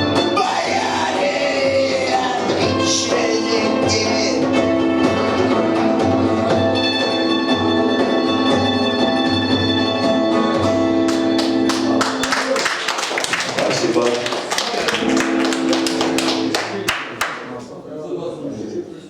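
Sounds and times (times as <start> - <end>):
punk rock band playing: 0.0 - 12.4, 15.0 - 16.8.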